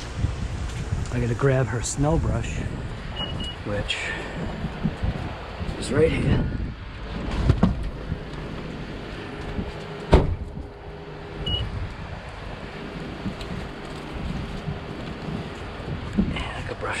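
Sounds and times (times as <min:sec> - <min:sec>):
car door shutting: 0:09.6 - 0:10.6.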